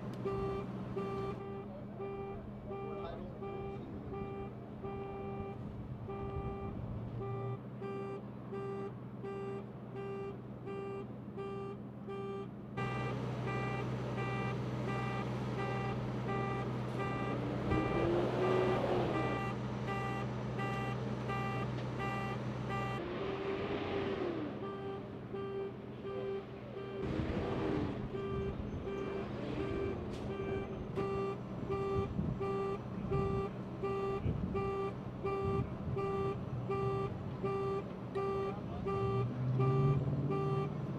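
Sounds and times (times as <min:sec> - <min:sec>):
backup alarm beeping: 0:00.3 - 0:23.0, 0:24.6 - 0:27.1, 0:28.1 - 0:40.7
cars passing: 0:12.6 - 0:40.9.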